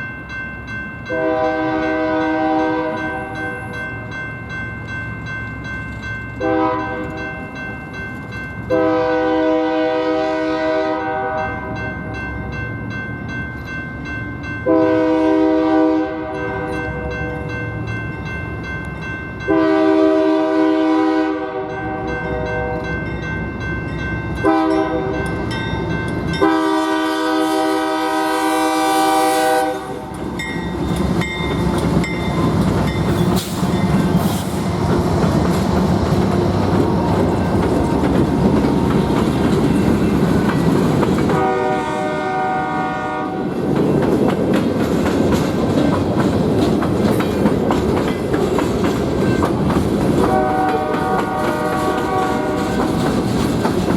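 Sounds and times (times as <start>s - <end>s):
train air horn blasts: 1.1s - 3.6s, 6.4s - 7.3s, 8.7s - 11.8s, 14.7s - 17.1s, 19.5s - 22.8s, 24.4s - 25.2s, 26.4s - 30.1s, 41.3s - 43.5s, 50.2s - 53.0s
locomotive engines rumbling: 4.7s - 53.9s
wheels clacking over rail joints: 30.0s - 41.6s, 43.5s - 53.9s.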